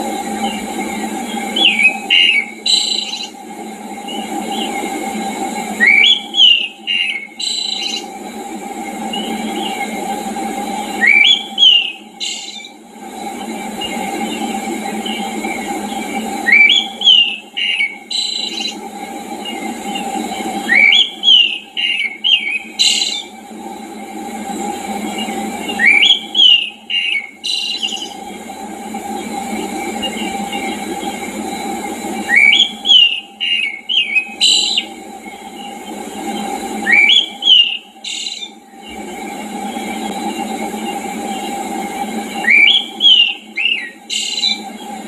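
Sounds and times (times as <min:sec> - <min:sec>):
background hiss and hum: 0:00.0 - 0:45.0
songbird whistling: 0:01.3 - 0:03.4, 0:05.7 - 0:08.1, 0:10.9 - 0:12.8, 0:16.4 - 0:18.8, 0:19.4 - 0:23.3, 0:25.2 - 0:28.2, 0:32.2 - 0:35.9, 0:36.8 - 0:38.6, 0:42.4 - 0:44.6.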